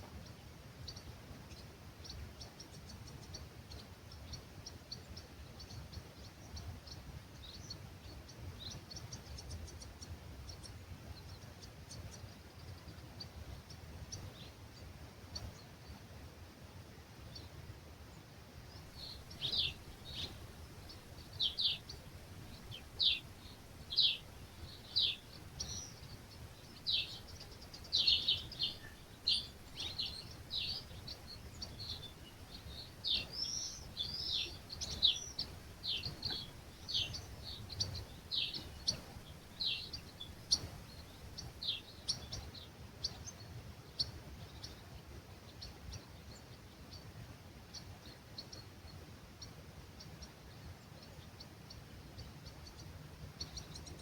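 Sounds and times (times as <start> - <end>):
songbirds chirping: 0.0 - 54.0
low steady rumble: 18.6 - 42.6.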